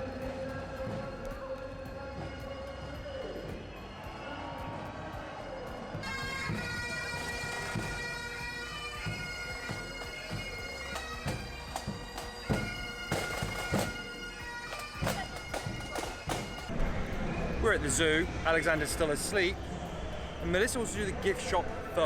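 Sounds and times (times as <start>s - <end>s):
bagpipes playing: 0.0s - 16.7s.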